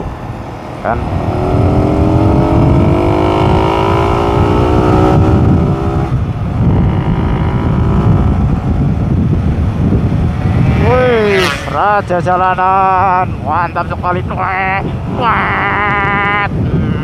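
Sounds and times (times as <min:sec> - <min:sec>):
wind rumble on microphone: 0:00.0 - 0:17.0
motorcycle engine accelerating: 0:00.2 - 0:12.4.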